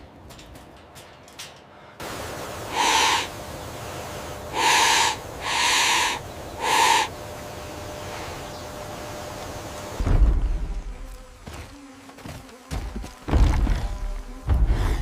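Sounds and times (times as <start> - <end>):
background hiss: 1.6 - 10.0
bird raspy hoots: 2.7 - 3.7, 4.4 - 7.2.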